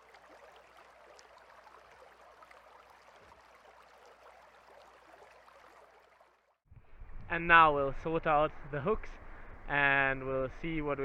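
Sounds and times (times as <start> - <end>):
mountain stream water rushing: 0.0 - 6.6.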